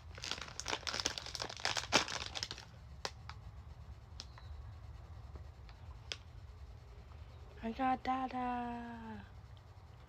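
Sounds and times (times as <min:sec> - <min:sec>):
plastic packaging crinkling and tearing: 0:00.0 - 0:03.4.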